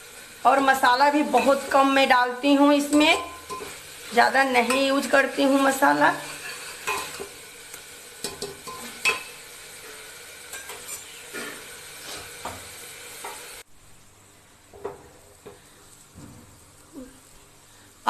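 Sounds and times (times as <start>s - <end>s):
masala sizzling in oil: 0.0s - 18.0s
spoon scraping a pan: 2.8s - 7.5s, 8.2s - 13.5s.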